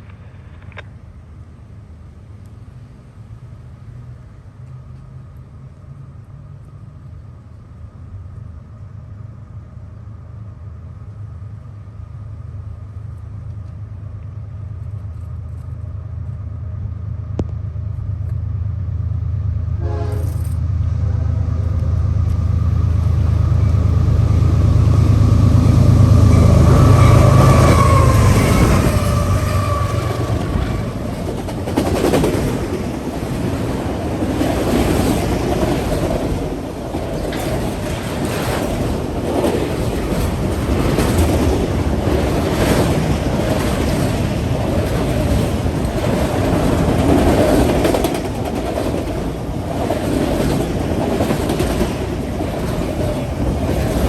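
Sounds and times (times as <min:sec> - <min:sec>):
diesel locomotive engine rumble: 0:00.0 - 0:54.0
train wheels rattling on rail: 0:21.4 - 0:54.0.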